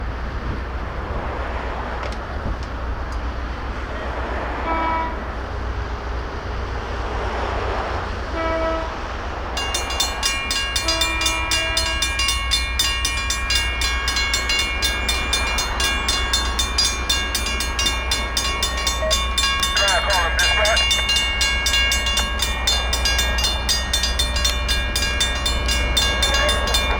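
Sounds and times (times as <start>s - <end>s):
locomotive horn blasts: 4.6s - 5.3s, 8.3s - 9.1s, 9.7s - 26.9s
locomotive low rumble: 7.6s - 26.9s
crossing bell ringing: 9.2s - 26.9s.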